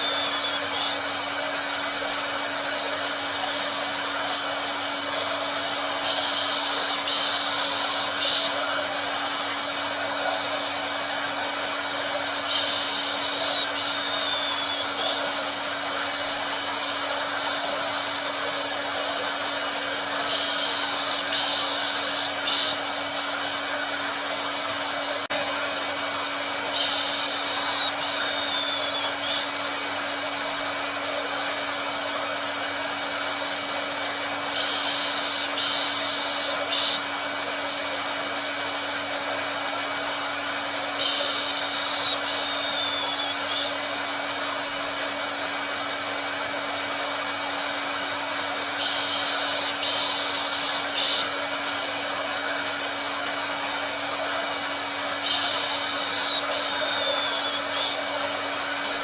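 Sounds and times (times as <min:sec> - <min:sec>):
short falling whistle: 0:00.0 - 0:01.0, 0:12.5 - 0:15.2, 0:26.8 - 0:29.5, 0:41.1 - 0:43.7, 0:55.3 - 0:58.0
high hiss: 0:00.0 - 0:31.5, 0:32.3 - 0:37.2, 0:39.4 - 0:45.1, 0:47.5 - 0:59.0
hair dryer humming: 0:00.0 - 0:59.0.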